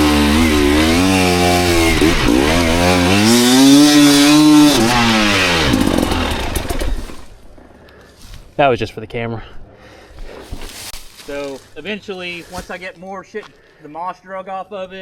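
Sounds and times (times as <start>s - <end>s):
dirt bike engine revving: 0.0s - 7.4s.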